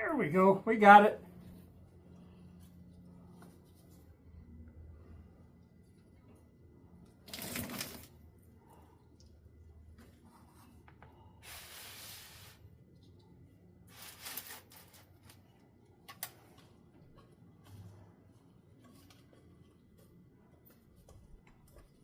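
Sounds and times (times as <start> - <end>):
rustling scraping handling noises: 13.9 - 15.5.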